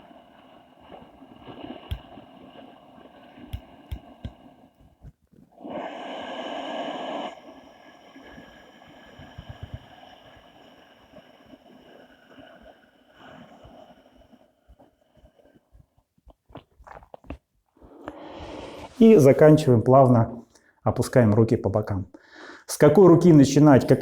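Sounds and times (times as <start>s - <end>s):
forceful breath hiss: 5.6s - 11.4s, 17.9s - 19.5s
faint hiss: 17.8s - 20.4s.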